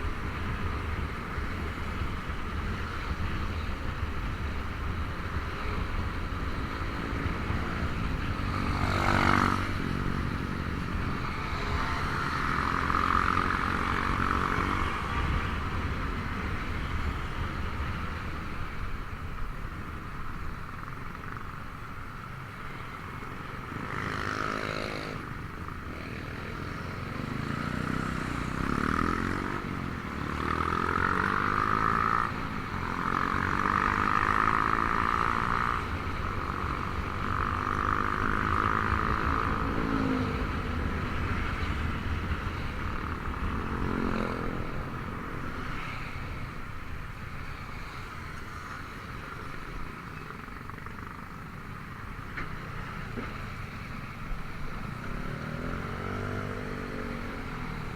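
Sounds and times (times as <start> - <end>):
scooter engine accelerating: 54.6 - 57.9.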